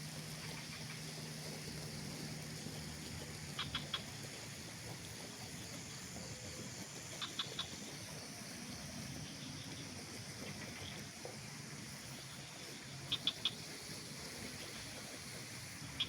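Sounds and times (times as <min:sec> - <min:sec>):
outdoor background hiss: 0:00.0 - 0:16.0
small bird chirping: 0:13.1 - 0:13.6.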